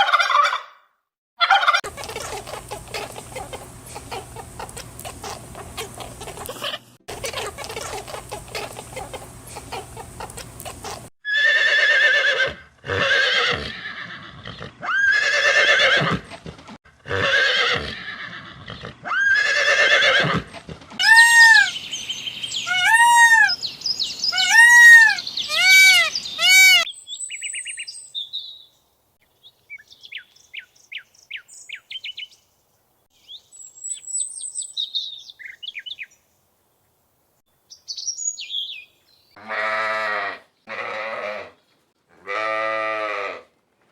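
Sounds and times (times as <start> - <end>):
loud pitched animal calls: 22.6 - 23.6, 24.3 - 26.9.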